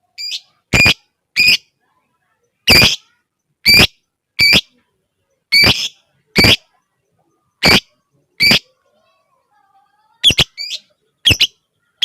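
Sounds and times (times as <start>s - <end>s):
bird giving shrill calls: 0.2s - 1.6s, 2.7s - 3.0s, 3.7s - 4.7s, 5.5s - 6.6s, 7.6s - 8.7s, 10.2s - 11.6s.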